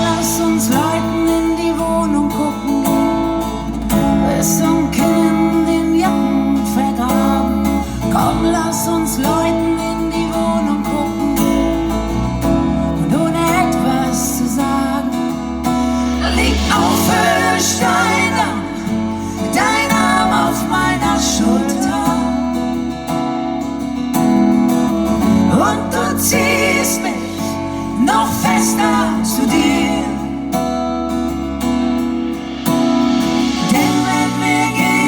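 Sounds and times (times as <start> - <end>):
person singing: 0.0 - 11.9, 12.8 - 23.2, 25.2 - 31.0, 33.2 - 35.0
strummed acoustic guitar: 0.0 - 35.0
band accompaniment: 31.5 - 35.0.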